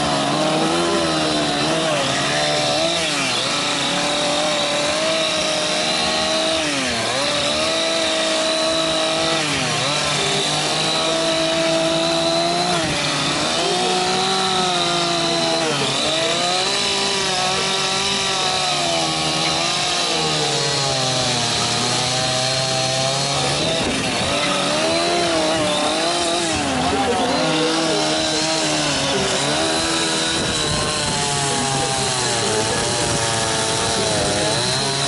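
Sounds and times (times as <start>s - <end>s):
chainsaw cutting wood: 0.0s - 35.0s.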